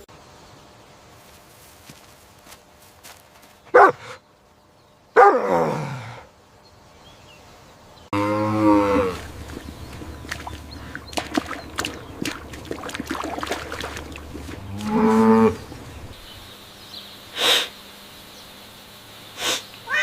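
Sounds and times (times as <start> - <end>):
cow mooing: 8.2 - 10.8, 13.8 - 16.1
steady low hum: 8.8 - 16.4.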